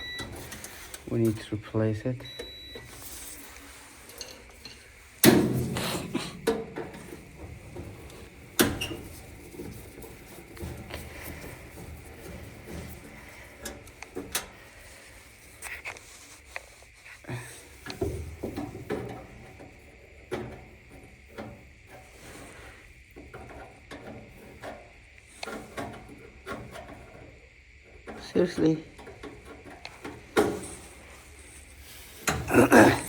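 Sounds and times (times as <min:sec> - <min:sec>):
tools and parts clicking and rattling: 0:02.2 - 0:14.8, 0:23.2 - 0:33.0.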